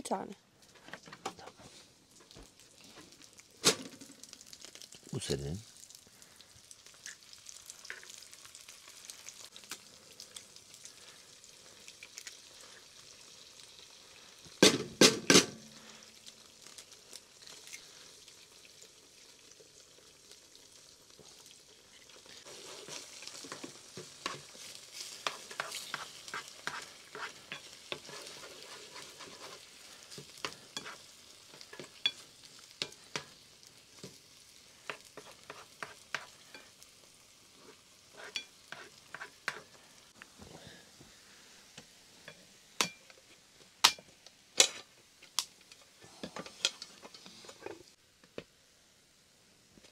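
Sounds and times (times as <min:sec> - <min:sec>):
food sizzling in a pan: 0:00.0 - 0:49.9
utensil scraping a pan: 0:22.4 - 0:32.2, 0:34.8 - 0:36.7, 0:37.6 - 0:39.7.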